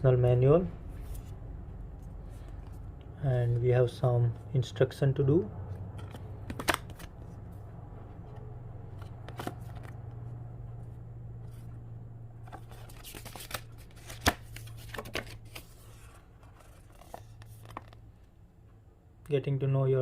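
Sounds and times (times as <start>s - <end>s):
steady low hum: 0.0s - 19.3s
paper rustling: 12.4s - 18.0s.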